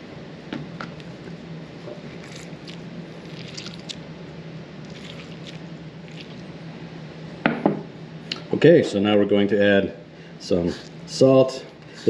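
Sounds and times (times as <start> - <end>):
steady low hum: 0.0 - 12.0
lemon squeezed by hand: 2.2 - 4.0, 4.9 - 6.5
juice dripping: 2.2 - 4.1, 4.8 - 6.6.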